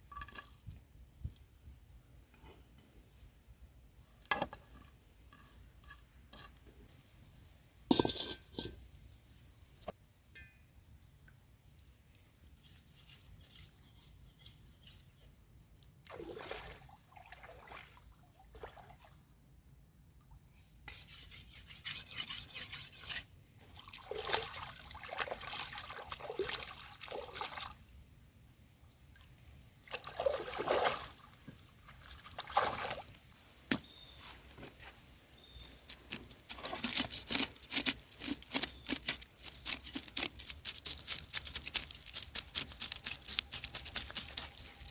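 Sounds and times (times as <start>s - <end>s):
water pouring and trickling: 23.6s - 27.9s, 29.1s - 33.3s.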